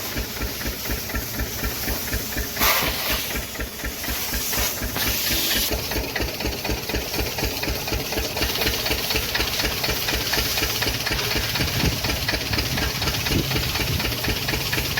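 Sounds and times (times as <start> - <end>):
spray hissing: 0.0 - 6.0
machine knocking: 0.0 - 14.9.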